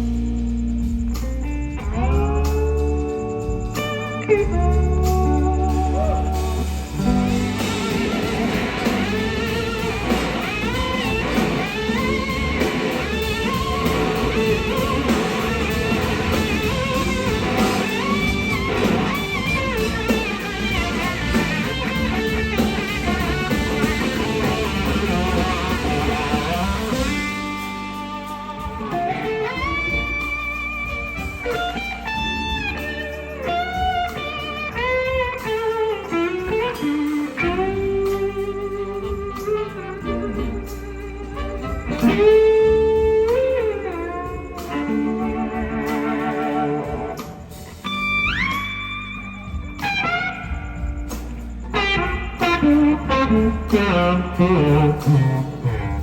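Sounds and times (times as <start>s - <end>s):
blues-rock band playing: 0.0s - 56.0s
electric slide guitar soloing: 4.2s - 27.9s, 51.7s - 56.0s.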